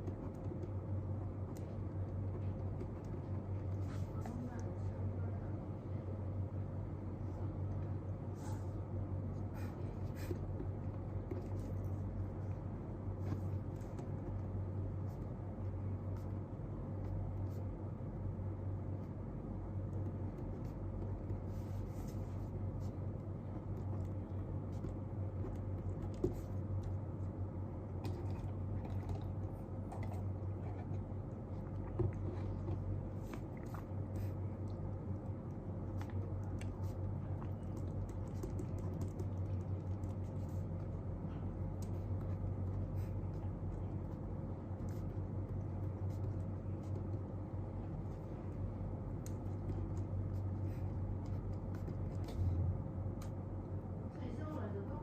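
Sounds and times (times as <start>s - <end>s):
low room hum: 0.0s - 55.0s
pen scratching on paper: 20.0s - 26.6s.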